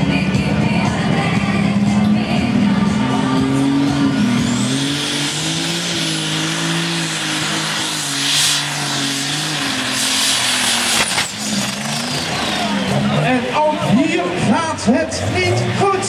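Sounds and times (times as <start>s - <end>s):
high engine whine: 0.0s - 16.0s
tractor engine running hard: 0.0s - 16.0s
sharp crack: 9.9s - 12.2s.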